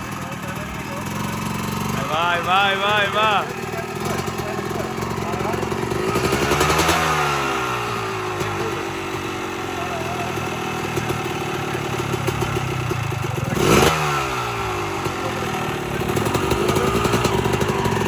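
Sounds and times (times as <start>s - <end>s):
motorcycle engine passing: 0.0s - 18.0s.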